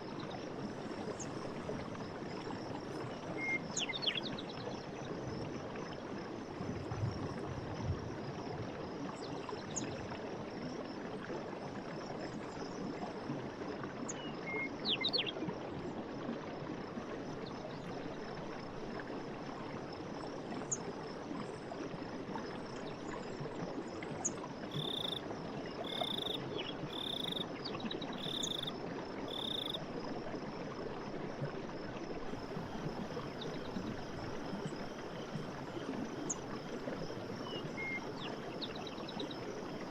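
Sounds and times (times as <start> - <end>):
constant hiss: 16.9 - 39.9
frogs calling: 24.7 - 29.8, 32.3 - 39.9
high insect trill: 25.9 - 27.5.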